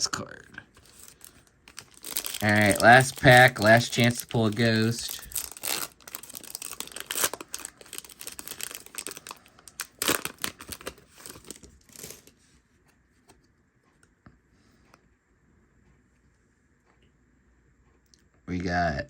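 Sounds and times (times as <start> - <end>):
foil wrapper tearing and crinkling: 0.8 - 12.3.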